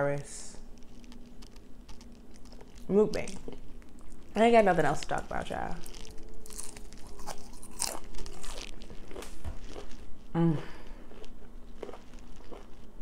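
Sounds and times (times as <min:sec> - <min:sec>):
chewing crunchy fried food: 0:00.5 - 0:13.0
person humming: 0:10.3 - 0:11.0.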